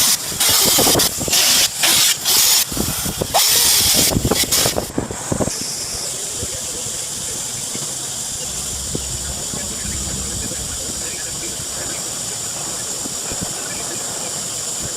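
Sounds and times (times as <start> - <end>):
low knocks: 8.4 - 13.1.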